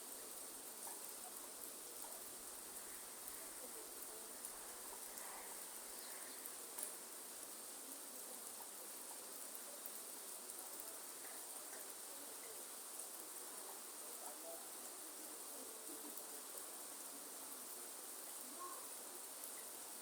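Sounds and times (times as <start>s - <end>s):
faint rain hiss: 0.0s - 20.0s
water drip ticks: 0.7s - 7.6s, 8.3s - 14.0s.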